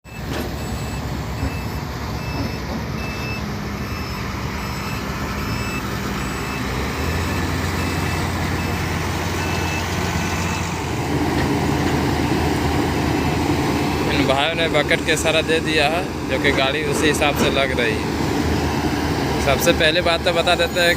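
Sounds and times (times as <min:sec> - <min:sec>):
diesel engine running: 0:00.0 - 0:20.9
reverse alarm beeps: 0:00.1 - 0:10.7.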